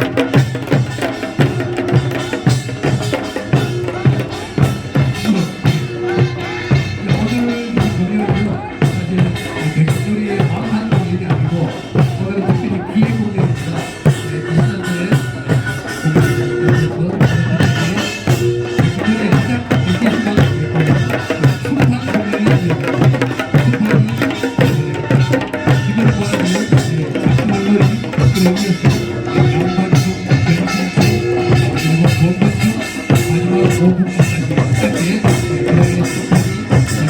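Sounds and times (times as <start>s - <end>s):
folk music with drums: 0.0s - 37.0s.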